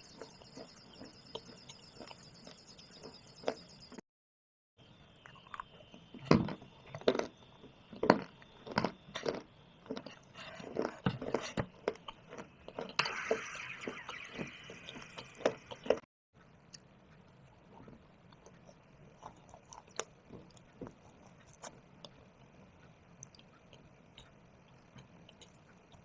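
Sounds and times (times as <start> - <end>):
stone being chewed and crunched: 0.1 - 3.8, 5.2 - 13.0, 17.5 - 26.0.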